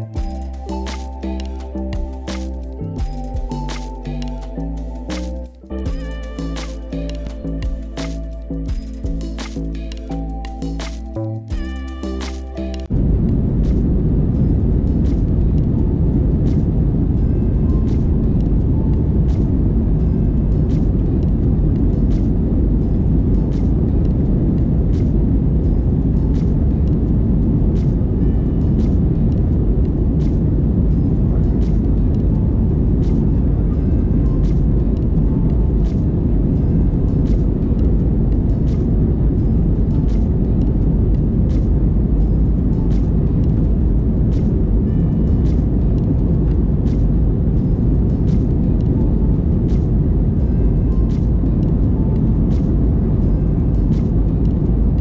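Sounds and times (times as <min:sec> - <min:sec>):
jet engine cabin rumble: 0:12.9 - 0:55.0.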